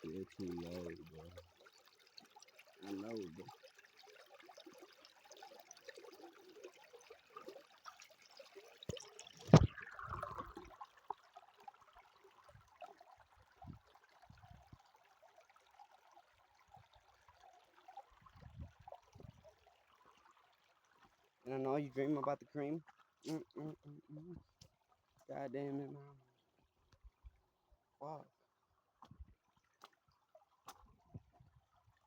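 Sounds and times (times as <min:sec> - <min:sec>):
stream water over rocks: 0:00.0 - 0:23.8, 0:24.5 - 0:32.0
loud thump: 0:09.5 - 0:09.7.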